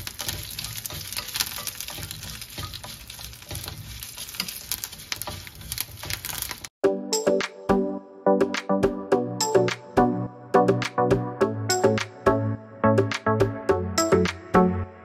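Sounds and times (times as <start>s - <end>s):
spices sizzling in a pan: 0.0s - 6.7s
wooden spatula scraping a pan: 0.0s - 6.7s
background music: 6.8s - 15.0s.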